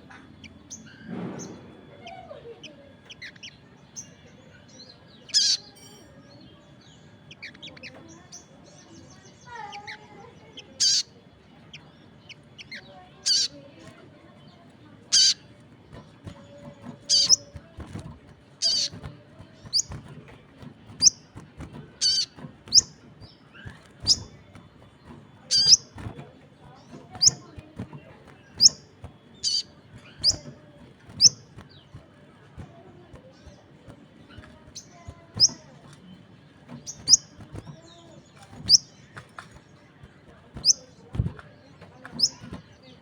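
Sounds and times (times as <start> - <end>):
bird chirping high and sharp: 5.1 - 5.9, 9.4 - 11.2, 12.2 - 13.6, 15.1 - 15.5, 16.9 - 17.6, 18.6 - 20.1, 22.0 - 24.6, 25.4 - 26.2, 27.1 - 27.6, 28.4 - 31.9, 34.4 - 35.6, 36.8 - 39.1, 40.6 - 40.8.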